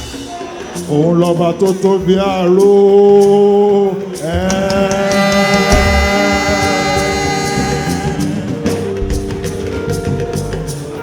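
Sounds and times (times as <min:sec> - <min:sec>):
choir singing a gospel hymn: 0:04.2 - 0:08.7
sustained accompaniment: 0:05.0 - 0:08.7.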